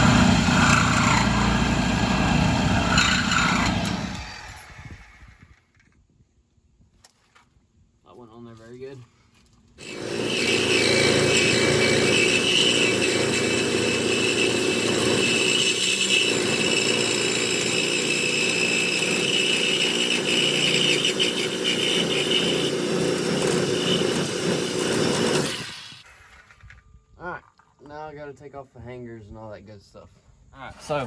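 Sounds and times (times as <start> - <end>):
power saw cutting steel pipe: 0.0 - 5.2, 9.8 - 26.1.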